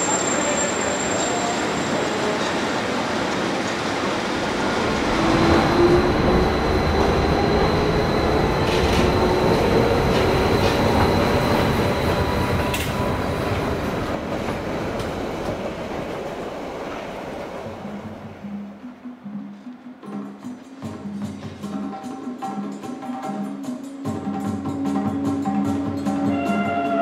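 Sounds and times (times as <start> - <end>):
faint wheel squeal: 0.0 - 2.4
train wheels rumbling on rail: 0.0 - 18.8.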